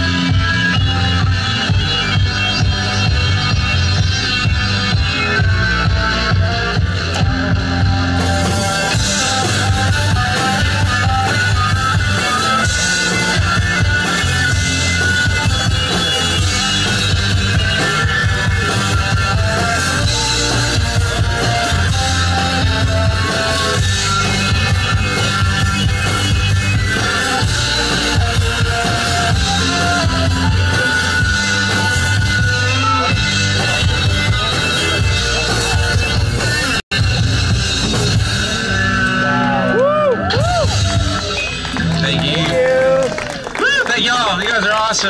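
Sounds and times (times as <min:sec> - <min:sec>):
rock music with drums and guitar: 0:00.0 - 0:45.0.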